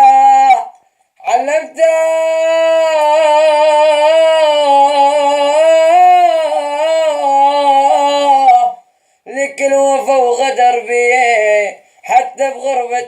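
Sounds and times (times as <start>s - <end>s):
person singing a long note: 0.0s - 8.8s.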